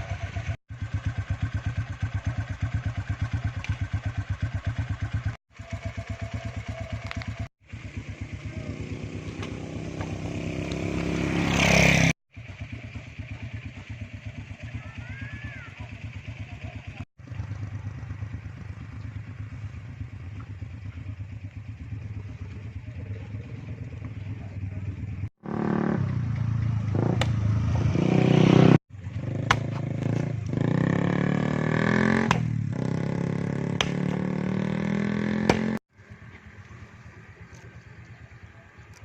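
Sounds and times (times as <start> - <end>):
small engine running: 0.7 - 20.7.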